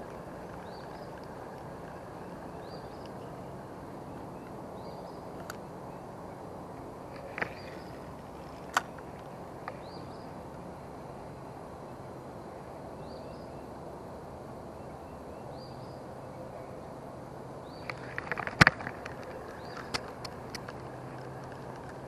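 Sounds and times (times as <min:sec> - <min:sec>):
bird chirping: 0:00.0 - 0:06.4, 0:07.1 - 0:08.9, 0:17.6 - 0:21.8.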